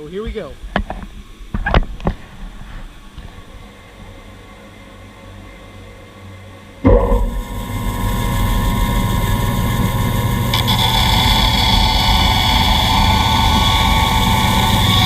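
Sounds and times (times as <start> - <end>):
band saw running: 6.9 - 15.0
dust collector running: 6.9 - 15.0
saw blade whine cutting wood: 6.9 - 15.0.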